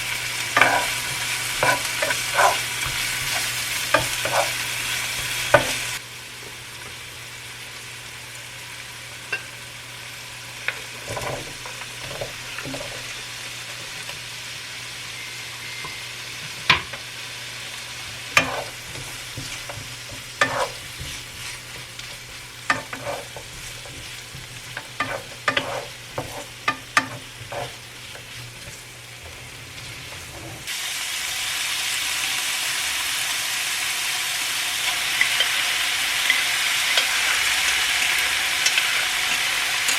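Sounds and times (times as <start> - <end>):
food sizzling in a pan: 0.0 - 39.9
utensil scraping a pan: 0.6 - 6.0, 18.1 - 28.8, 29.6 - 30.7.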